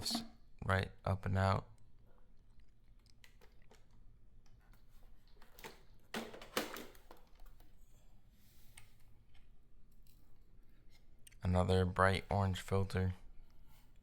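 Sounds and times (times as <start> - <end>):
plastic parts clicking and rattling: 5.2 - 7.8.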